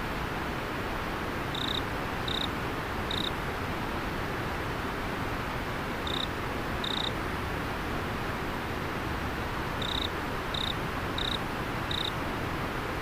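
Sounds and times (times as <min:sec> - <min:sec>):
cricket chirping: 0:01.5 - 0:02.5, 0:03.1 - 0:03.3, 0:06.0 - 0:07.1, 0:09.8 - 0:12.2.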